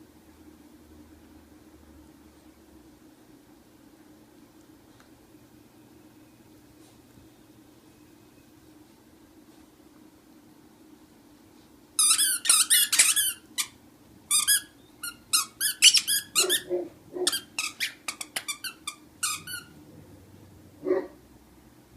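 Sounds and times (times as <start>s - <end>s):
squeaky toy squeaking: 12.0s - 16.7s, 17.3s - 19.7s.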